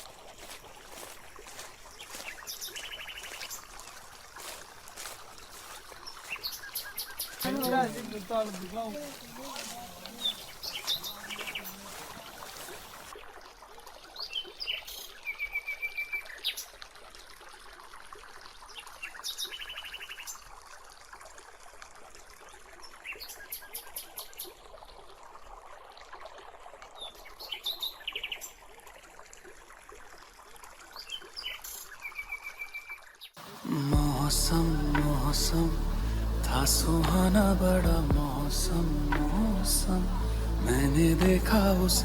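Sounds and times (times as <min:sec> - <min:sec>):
trickle of running water: 0:00.0 - 0:42.0
birds chirping and trilling: 0:04.4 - 0:13.1.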